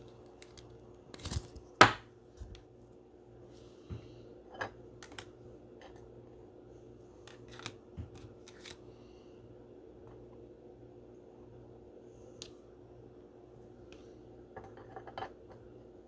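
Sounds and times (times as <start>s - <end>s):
low steady hum: 0.0s - 16.0s
trading cards handled: 7.3s - 8.8s.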